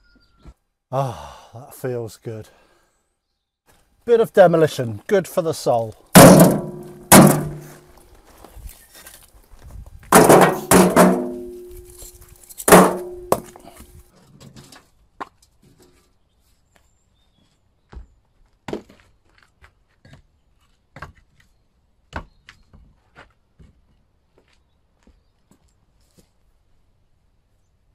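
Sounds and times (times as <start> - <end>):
bricks knocking and clattering: 6.2 - 7.8, 10.1 - 11.9, 12.6 - 13.8.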